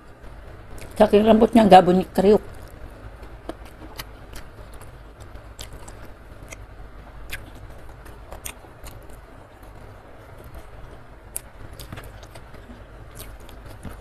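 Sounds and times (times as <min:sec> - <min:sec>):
wet chewing mouth clicks: 0:03.4 - 0:09.2, 0:11.3 - 0:14.0.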